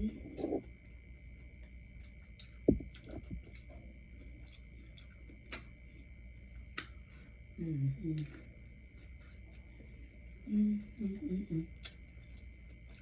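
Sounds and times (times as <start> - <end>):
chewing food: 0.0 - 7.0, 11.7 - 13.0.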